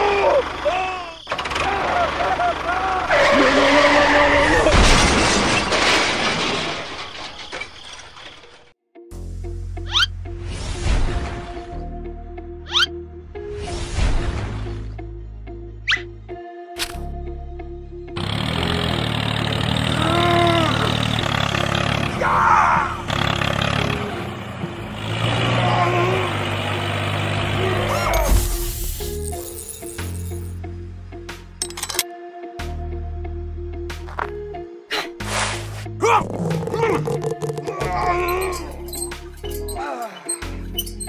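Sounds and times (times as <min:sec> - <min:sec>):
tractor engine running: 0:00.1 - 0:03.5, 0:18.2 - 0:22.2, 0:22.9 - 0:25.6
loud crash with low thump: 0:04.6 - 0:07.6.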